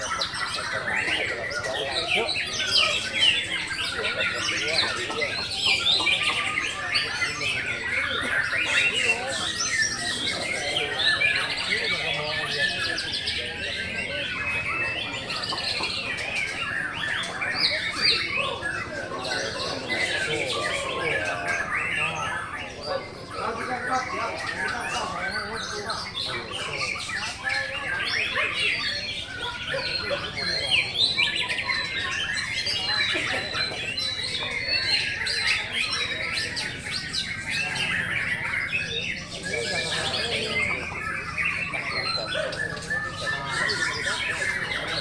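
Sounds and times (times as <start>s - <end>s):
caged songbirds singing: 0.0s - 45.0s.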